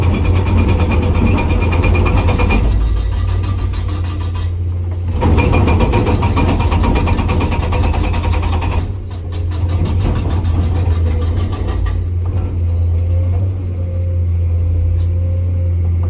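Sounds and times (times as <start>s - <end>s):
hydraulic breaker hammering rock: 0.0s - 12.8s
diesel engine running: 0.0s - 16.0s.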